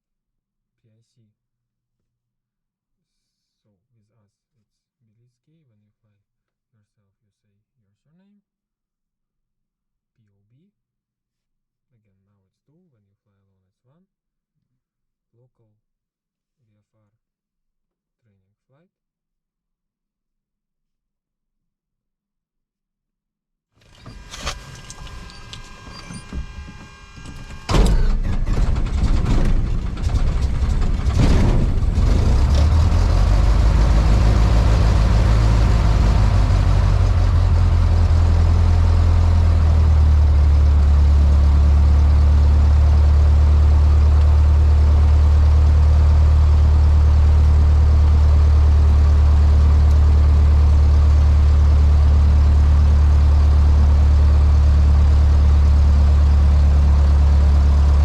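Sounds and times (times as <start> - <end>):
airplane engine starting and idling: 23.8 - 58.0.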